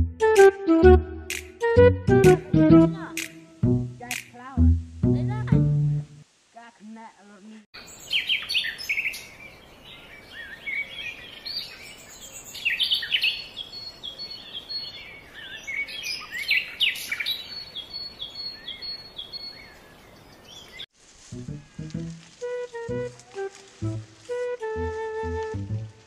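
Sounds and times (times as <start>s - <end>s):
faint background hiss: 2.8s - 26.0s
birds chirping and singing: 7.9s - 20.8s.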